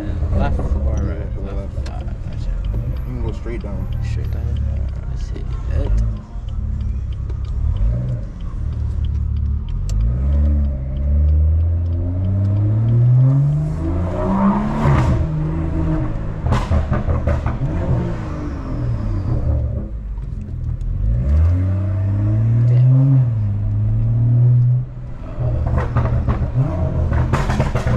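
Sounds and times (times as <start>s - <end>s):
exhaust pops and crackles: 0.0s - 13.8s, 14.4s - 18.2s, 25.4s - 27.9s
car engine revving hard: 9.8s - 19.9s, 21.0s - 27.9s.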